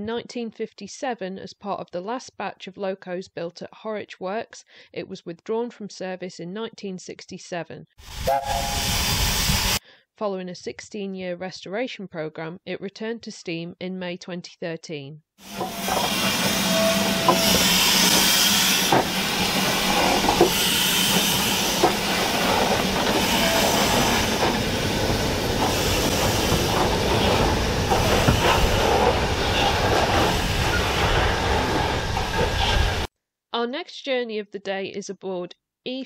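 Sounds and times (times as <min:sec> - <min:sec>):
train hiss: 0:08.0 - 0:09.8, 0:15.4 - 0:33.1.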